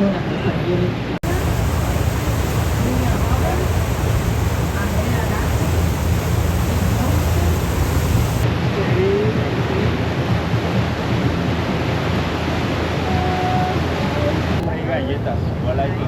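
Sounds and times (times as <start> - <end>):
low steady hum: 1.2 - 8.5
water rushing past boat: 1.2 - 8.5.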